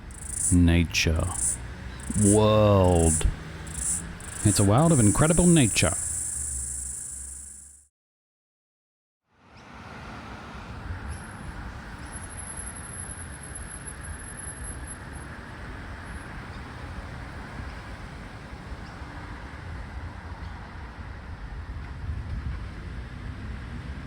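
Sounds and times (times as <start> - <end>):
low outdoor rumble: 0.0 - 7.4
high-pitched insect buzz: 0.0 - 7.8.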